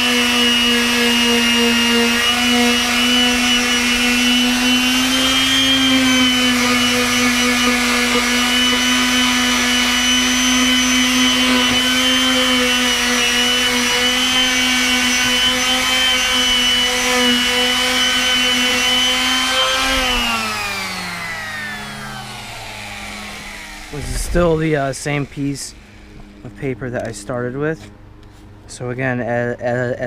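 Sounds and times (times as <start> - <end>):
palm sander sanding wood: 0.0 - 28.5.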